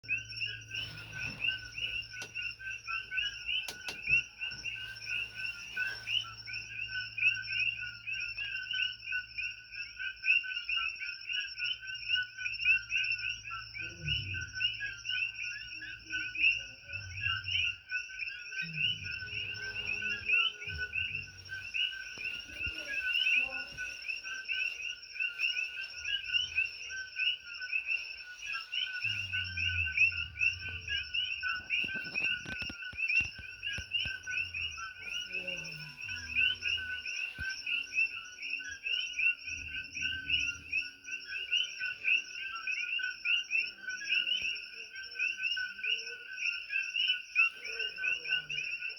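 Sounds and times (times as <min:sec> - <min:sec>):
chorus of frogs chirping: 0:00.0 - 0:48.9.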